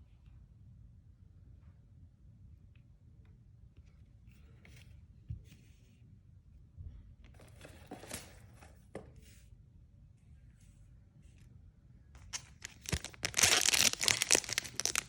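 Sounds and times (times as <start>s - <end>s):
cards and packaging rustling: 12.2s - 15.0s.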